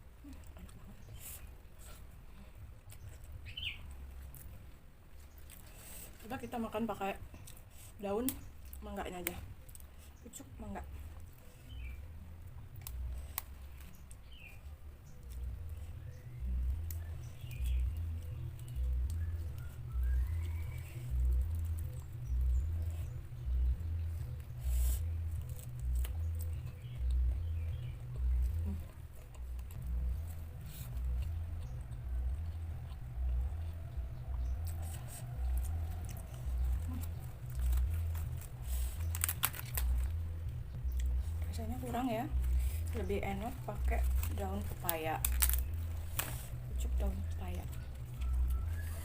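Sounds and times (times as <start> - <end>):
chewing leaves close up: 0.0 - 49.0
crisp wet clicks: 12.4 - 48.8
deep chewing thuds: 15.2 - 49.0.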